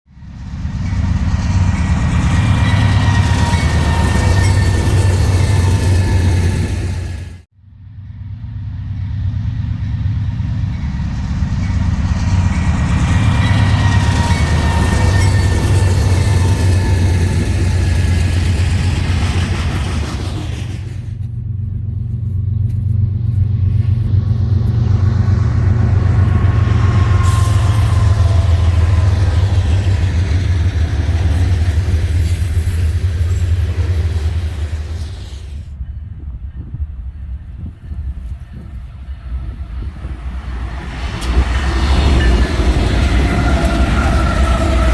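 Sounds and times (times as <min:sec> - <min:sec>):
diesel locomotive engine rumble: 0:00.0 - 0:44.9
train noise: 0:00.0 - 0:44.9
wheel and rail hiss: 0:26.2 - 0:35.8.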